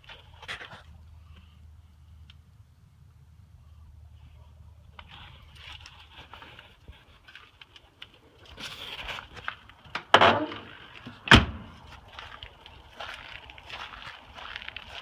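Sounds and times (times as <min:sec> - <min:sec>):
handling clicks and rustle: 0:04.9 - 0:15.0.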